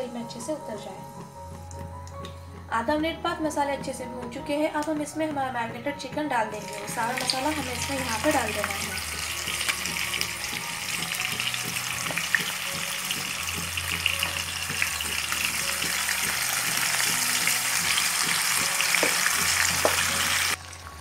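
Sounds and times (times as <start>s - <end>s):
chicken sizzling in hot oil: 6.6s - 21.0s.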